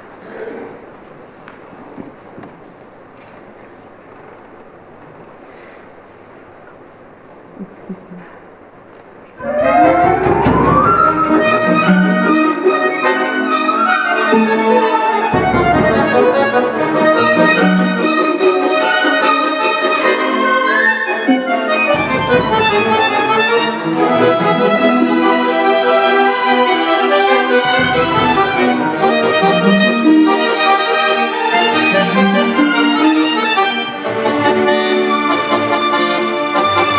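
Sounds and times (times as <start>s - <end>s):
accordion solo: 9.4s - 36.9s
orchestra strings: 9.4s - 36.9s.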